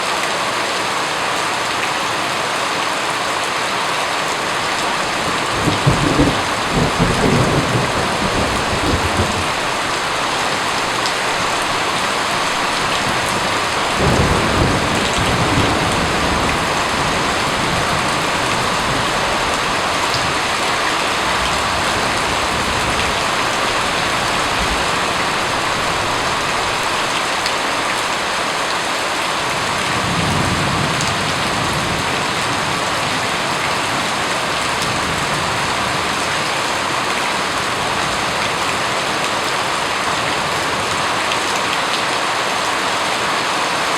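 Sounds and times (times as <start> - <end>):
steady rain: 0.0 - 43.9
thunder rumbling: 5.0 - 28.3.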